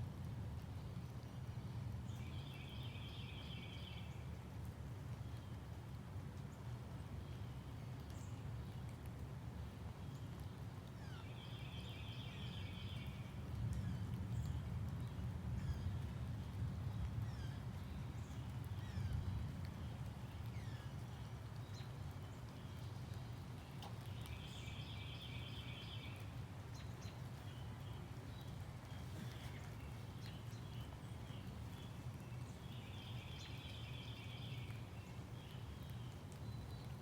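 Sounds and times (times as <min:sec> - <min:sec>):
birds chirping: 0:18.3 - 0:37.0.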